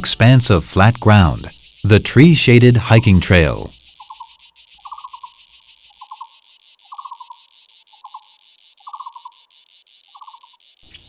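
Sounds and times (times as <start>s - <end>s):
short trilled call: 0.0s - 3.7s
insects buzzing: 0.0s - 11.0s.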